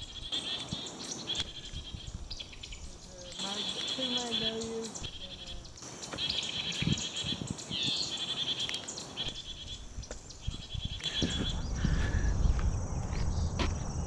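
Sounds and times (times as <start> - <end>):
small bird singing trills: 0.0 - 13.6
low rumble: 9.3 - 14.0.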